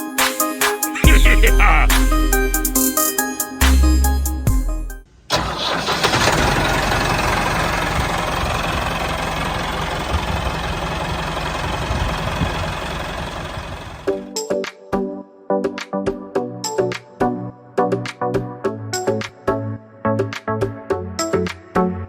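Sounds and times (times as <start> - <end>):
background music: 0.0 - 5.0.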